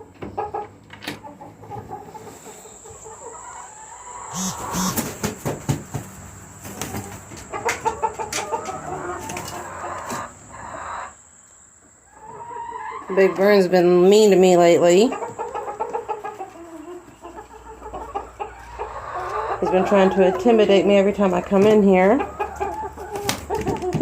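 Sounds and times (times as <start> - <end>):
chickens clucking: 0.0 - 24.0
loud knocking and scuffling: 5.0 - 7.5.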